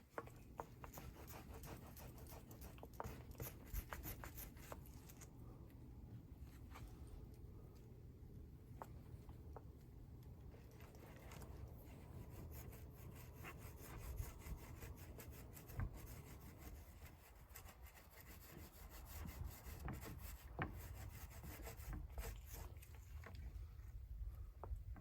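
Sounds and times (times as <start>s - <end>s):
faint rubbing on drum shell: 0.5s - 5.0s.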